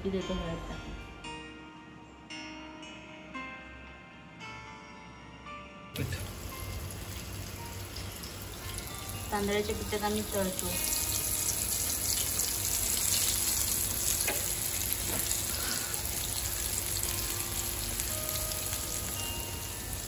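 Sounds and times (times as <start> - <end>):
seafood sizzling in hot oil: 6.0 - 20.0.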